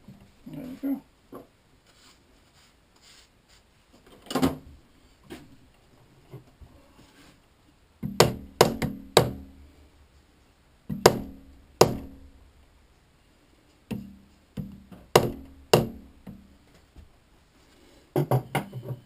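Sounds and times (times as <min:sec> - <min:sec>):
hammer knocking on metal: 0:08.0 - 0:09.4, 0:10.9 - 0:12.2, 0:13.9 - 0:16.4.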